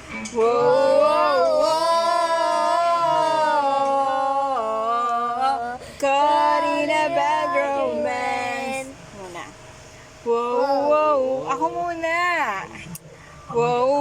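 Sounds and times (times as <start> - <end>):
person singing unaccompanied: 0.1 - 9.0.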